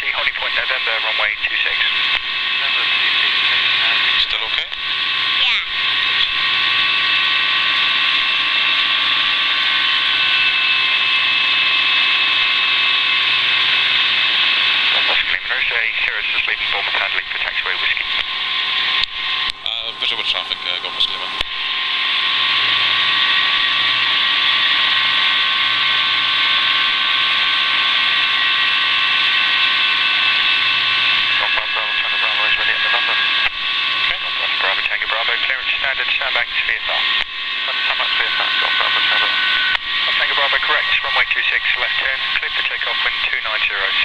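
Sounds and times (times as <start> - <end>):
headset radio hiss: 0.0 - 4.8, 14.9 - 18.2, 31.3 - 44.0
faint steady tones: 0.0 - 44.0
helicopter engine and rotor noise: 0.0 - 44.0.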